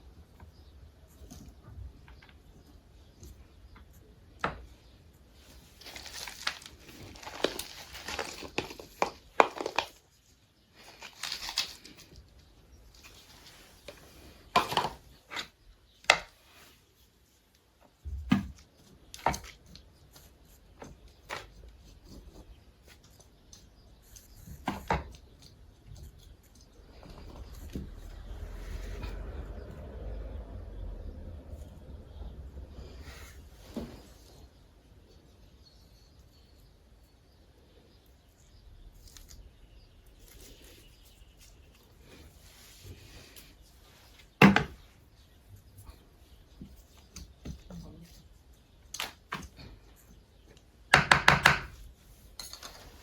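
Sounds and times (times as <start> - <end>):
rustling: 4.7 - 15.7
household clicks and knocks: 50.9 - 51.8.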